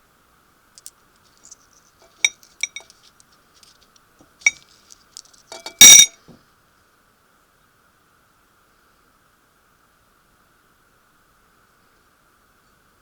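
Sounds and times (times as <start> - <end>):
small objects clinking against glass: 0.8 - 3.0, 4.4 - 6.2
loud clattering clink: 2.1 - 2.9, 5.5 - 6.2.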